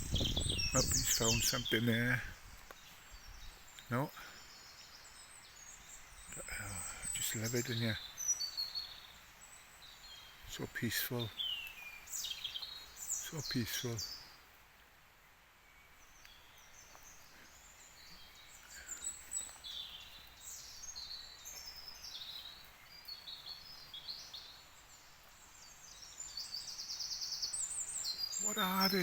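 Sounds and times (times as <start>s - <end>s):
songbirds singing: 0.0s - 29.0s
rapid bird trill: 27.2s - 29.0s.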